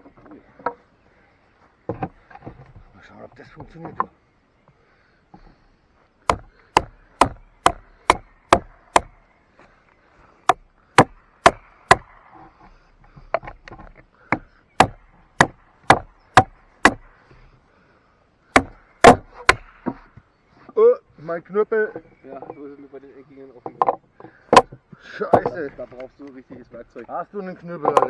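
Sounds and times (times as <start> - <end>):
baton hammering knife spine: 6.3 - 9.1, 14.3 - 17.0, 18.6 - 20.0.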